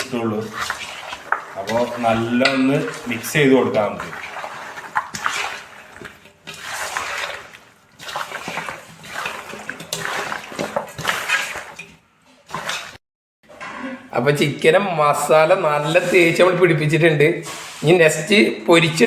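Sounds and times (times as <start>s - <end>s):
hands squelching meat in marinade: 0.0s - 13.0s.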